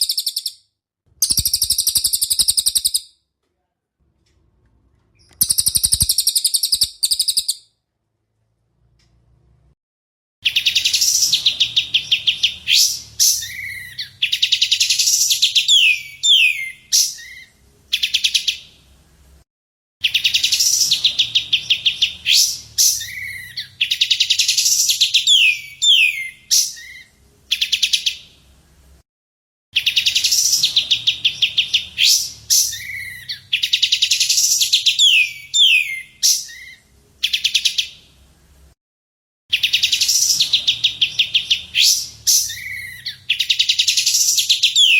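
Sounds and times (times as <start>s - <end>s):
bird call trill and whistles: 0.0s - 0.6s, 1.2s - 3.2s, 5.2s - 7.7s, 10.4s - 18.7s, 20.0s - 28.2s, 29.8s - 38.0s, 39.5s - 44.9s.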